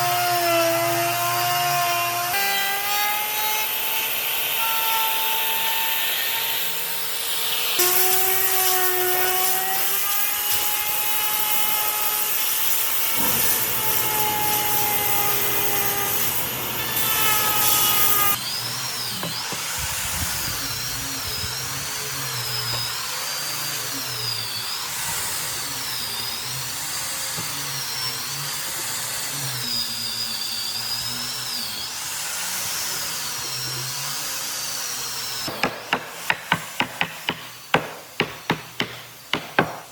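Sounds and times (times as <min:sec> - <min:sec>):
electric power tool on wood: 0:00.0 - 0:39.8
high wavering whine: 0:13.0 - 0:18.4.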